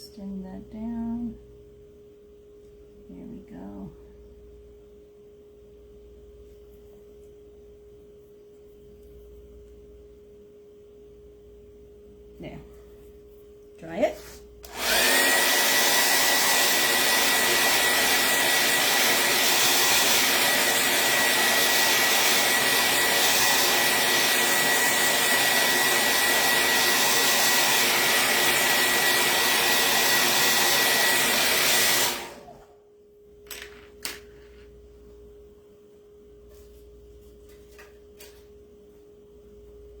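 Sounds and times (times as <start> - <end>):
hot-air dryer blowing with motor whine: 13.8 - 32.9.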